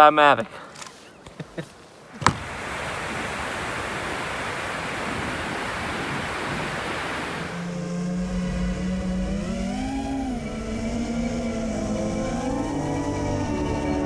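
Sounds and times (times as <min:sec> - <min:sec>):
steady rushing noise: 0:02.2 - 0:07.9.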